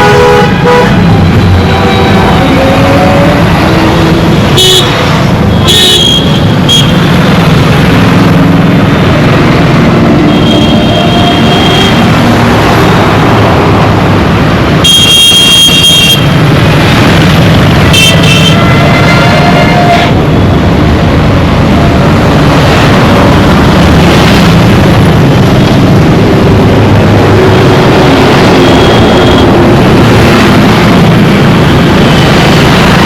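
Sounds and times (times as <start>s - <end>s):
vehicle horns tooting: 0.0s - 3.4s, 4.5s - 7.0s, 14.8s - 16.3s, 17.9s - 20.2s
traffic engines rumbling: 0.0s - 33.0s.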